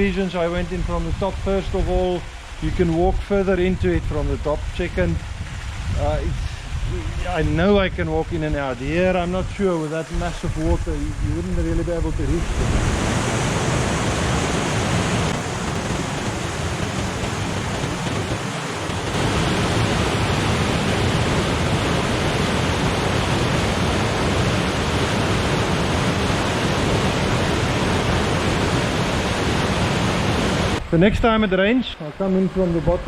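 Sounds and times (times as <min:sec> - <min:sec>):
water rushing down rocky gorge: 0:12.3 - 0:30.8.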